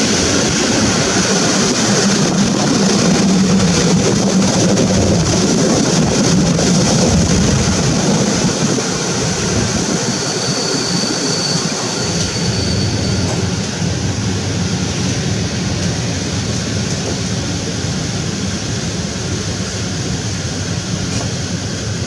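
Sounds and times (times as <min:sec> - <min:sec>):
train carriage rumbling on track: 0:00.0 - 0:22.0
faint high whine: 0:09.2 - 0:14.6.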